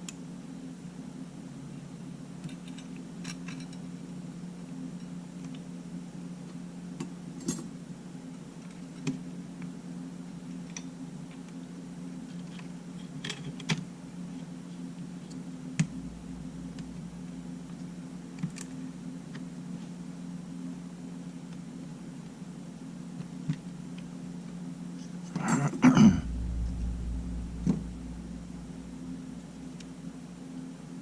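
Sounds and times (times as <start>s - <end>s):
steady low hum: 14.8s - 21.2s, 24.0s - 31.0s.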